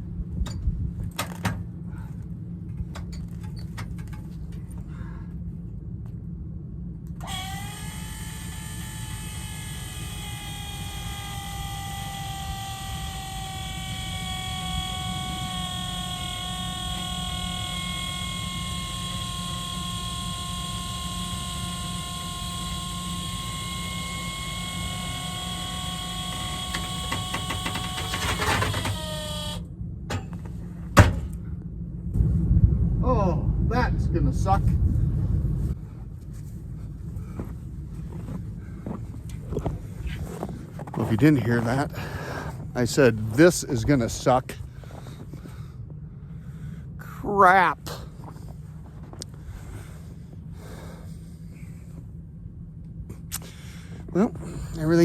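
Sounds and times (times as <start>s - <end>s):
low engine rumble: 0.0s - 55.0s
electric motor whine: 7.1s - 31.4s.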